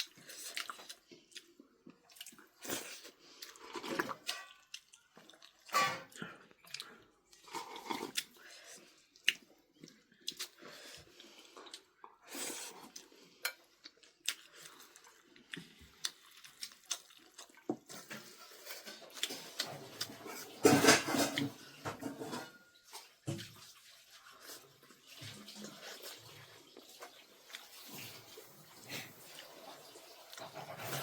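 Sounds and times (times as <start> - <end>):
dishes and utensils clinking: 5.7 - 6.2, 17.9 - 23.5, 30.2 - 31.0.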